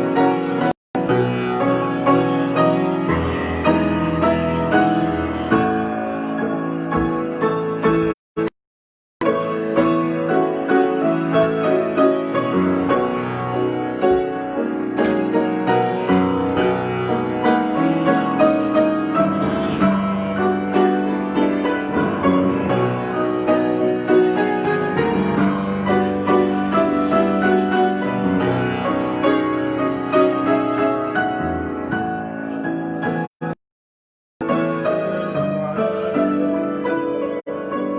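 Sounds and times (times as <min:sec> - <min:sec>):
solo piano improvisation: 0:00.0 - 0:08.5, 0:09.2 - 0:33.6, 0:34.4 - 0:37.9.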